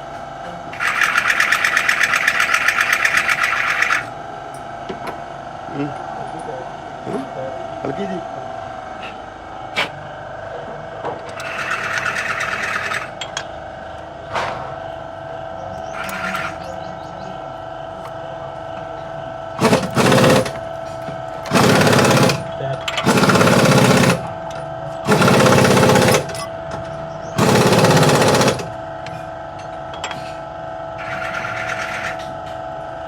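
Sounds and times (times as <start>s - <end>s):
steady machine hum: 0.0s - 33.0s
pneumatic impact wrench rattling: 0.8s - 4.1s, 11.3s - 13.1s, 15.9s - 16.6s, 19.6s - 20.7s, 21.4s - 24.3s, 25.0s - 26.5s, 27.4s - 28.8s.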